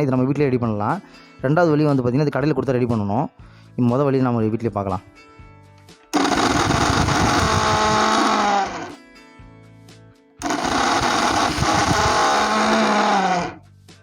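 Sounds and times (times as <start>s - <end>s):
mixer grinder motor hum: 6.2s - 9.0s, 10.4s - 13.6s.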